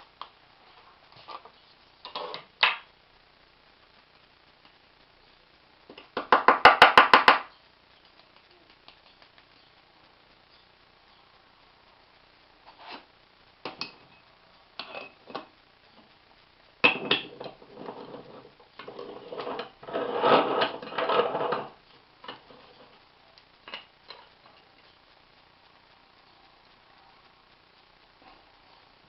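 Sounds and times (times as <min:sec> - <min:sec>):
metal scraping and rasping: 0:17.4 - 0:21.8.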